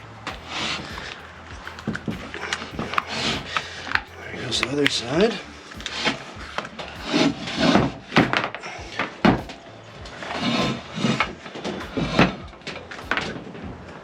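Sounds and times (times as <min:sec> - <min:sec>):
rubber gasket rubbing and scraping: 0:00.0 - 0:13.9.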